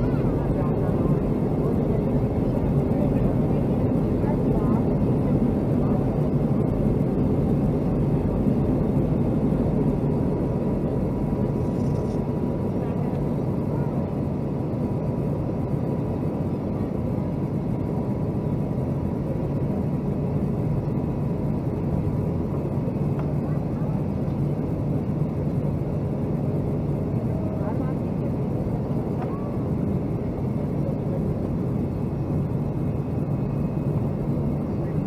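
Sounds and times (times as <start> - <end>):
faint steady whine: 0.0 - 35.0
jet engine and airflow noise: 0.0 - 35.0.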